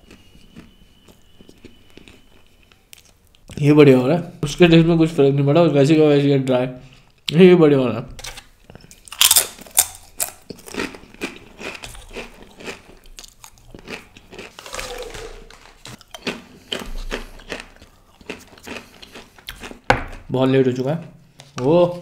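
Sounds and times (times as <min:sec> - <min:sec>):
crunching chips: 0:08.9 - 0:19.8.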